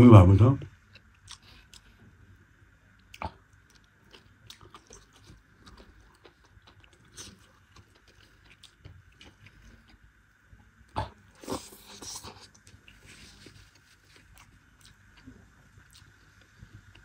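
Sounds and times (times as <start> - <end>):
person chewing: 0.9 - 2.1, 3.0 - 10.0, 11.0 - 17.0.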